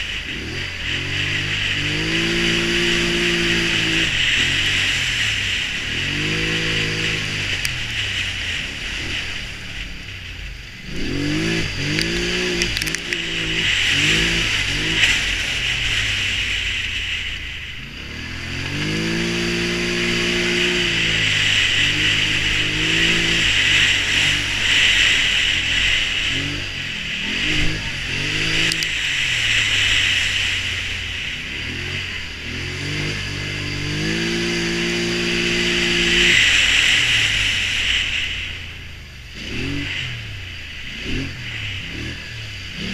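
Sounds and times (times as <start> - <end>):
atv engine revving: 0.0 - 42.9.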